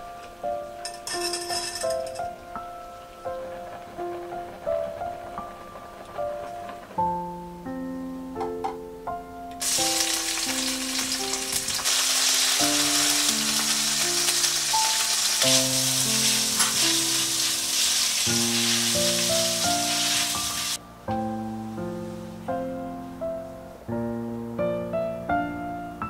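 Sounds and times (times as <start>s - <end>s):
soft piano music: 0.0s - 26.0s
food sizzling in a pan: 9.6s - 20.8s.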